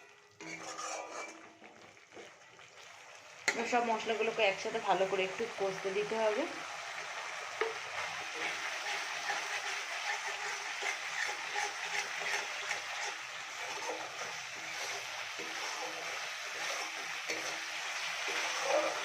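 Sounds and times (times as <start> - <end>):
spice paste sizzling in hot oil: 0.0 - 19.0.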